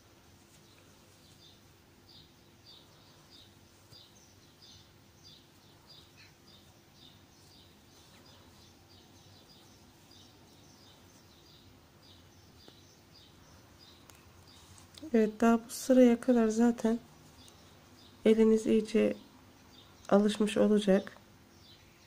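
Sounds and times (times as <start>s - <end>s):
small bird chirping: 0.4s - 22.0s.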